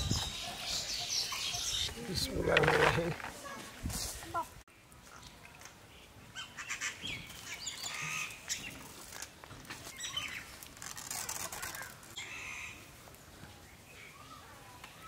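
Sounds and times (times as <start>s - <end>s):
small birds chirping: 0.0s - 2.6s, 4.7s - 12.8s.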